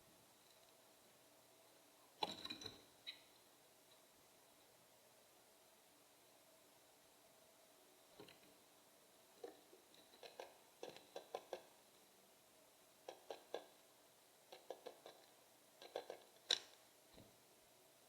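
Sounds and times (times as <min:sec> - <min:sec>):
birds pecking on a feeder: 0:09.4 - 0:11.8, 0:13.0 - 0:13.8, 0:14.4 - 0:16.8.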